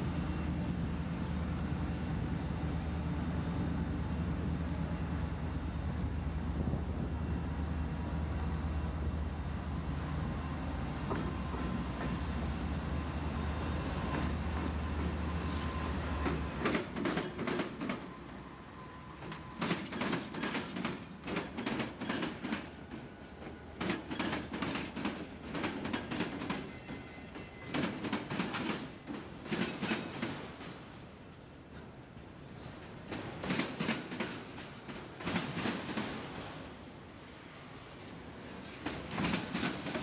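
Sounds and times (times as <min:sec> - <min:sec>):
diesel locomotive engine drone: 0:00.0 - 0:40.0
train wheels clattering over joints: 0:16.2 - 0:18.4, 0:19.2 - 0:31.2, 0:32.6 - 0:36.6, 0:38.4 - 0:40.0.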